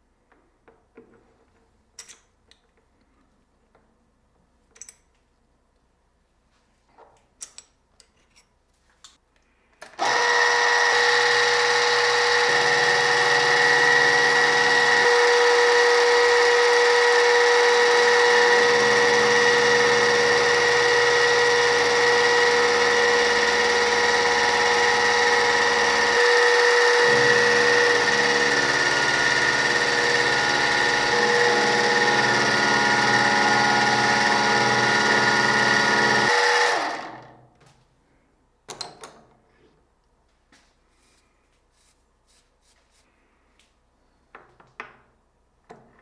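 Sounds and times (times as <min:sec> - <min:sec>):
workshop machine whining: 0:09.8 - 0:37.4.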